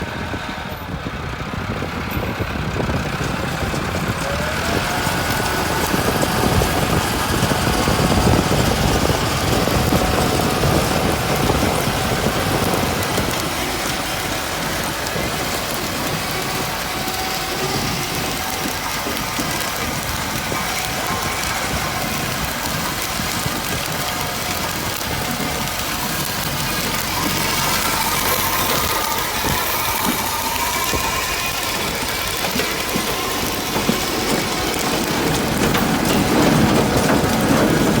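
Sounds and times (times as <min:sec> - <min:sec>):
tractor engine running: 0:00.0 - 0:38.0.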